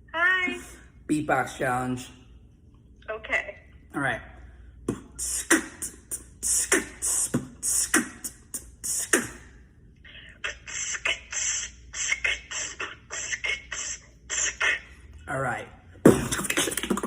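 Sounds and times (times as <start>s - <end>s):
beatboxing hi-hat hisses: 4.9s - 9.5s, 16.1s - 17.0s
beatboxing kick-drum sounds: 4.9s - 9.5s, 16.0s - 17.0s
beatboxing snare sounds: 4.9s - 9.5s, 16.0s - 17.0s.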